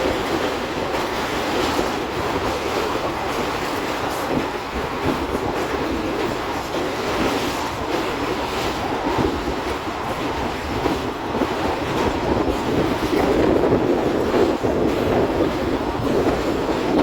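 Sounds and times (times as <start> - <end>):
faint train clatter: 0.0 - 17.0
train wheels rumbling on rails: 0.0 - 17.0.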